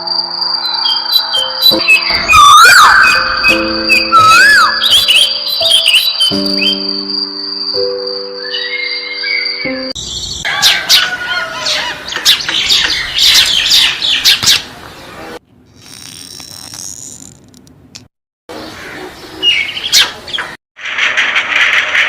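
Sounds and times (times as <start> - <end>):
birds chirping and squawking: 0.6 - 7.0, 8.4 - 15.4, 18.6 - 22.0.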